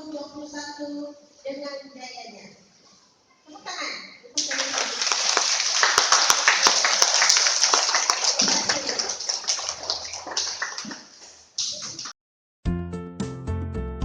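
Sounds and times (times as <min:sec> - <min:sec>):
audience applause: 0:04.4 - 0:11.1
music: 0:12.6 - 0:14.0.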